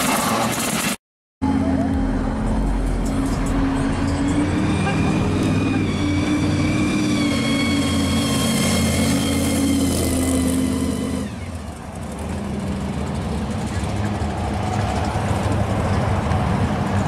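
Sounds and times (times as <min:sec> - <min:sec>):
car engine rumble: 0:01.4 - 0:09.2
supercharger whine: 0:01.4 - 0:14.0.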